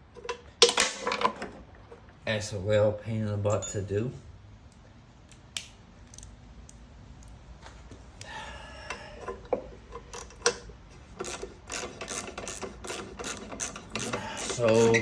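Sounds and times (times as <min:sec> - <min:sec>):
tool squeak: 0:11.2 - 0:15.0.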